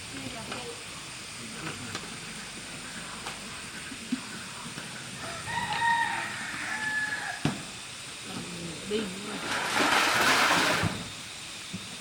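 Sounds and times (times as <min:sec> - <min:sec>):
rooster crowing: 0:05.2 - 0:07.6.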